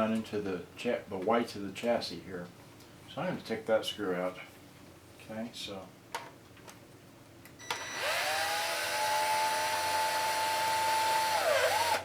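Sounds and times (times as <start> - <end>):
electric screwdriver motor whine: 7.6 - 12.0.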